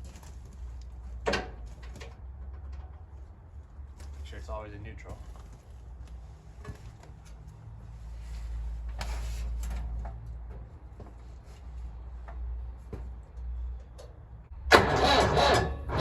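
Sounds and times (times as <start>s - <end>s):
diesel tractor engine cranking: 13.8s - 16.0s.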